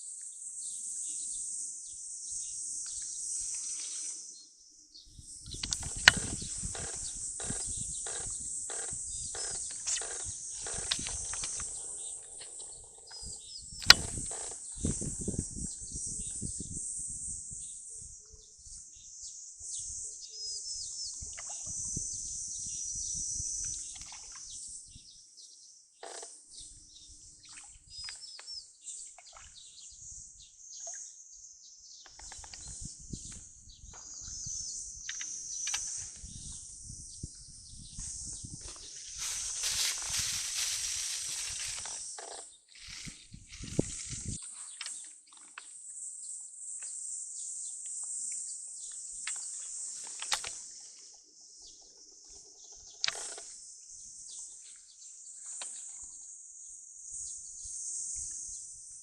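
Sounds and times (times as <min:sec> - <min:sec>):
insects chorus: 0:00.0 - 0:29.0, 0:29.8 - 0:59.0
sharp clicks: 0:05.6 - 0:11.7, 0:13.8 - 0:14.5
rustling: 0:38.7 - 0:44.3.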